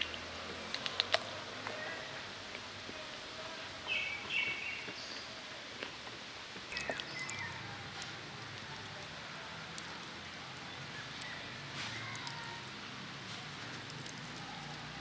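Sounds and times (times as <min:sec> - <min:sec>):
steady outdoor hiss: 0:00.0 - 0:15.0
small birds chirping: 0:03.4 - 0:05.7, 0:06.5 - 0:15.0.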